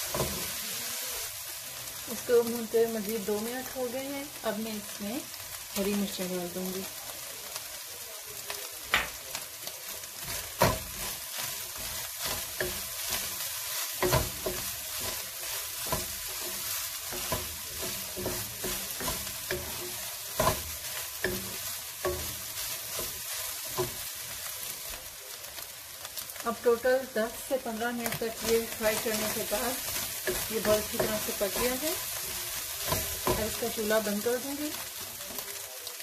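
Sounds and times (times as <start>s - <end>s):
meat and onions sizzling: 0.0s - 36.0s
wooden spatula scraping a pan: 10.1s - 24.9s, 27.8s - 35.5s.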